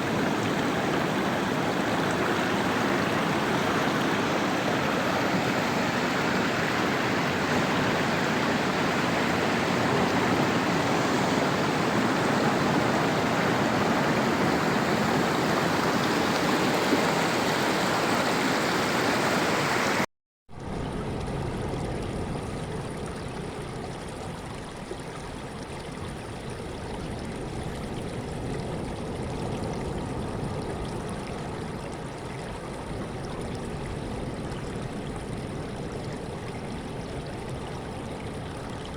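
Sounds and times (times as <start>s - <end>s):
sea waves washing: 0.0s - 20.0s.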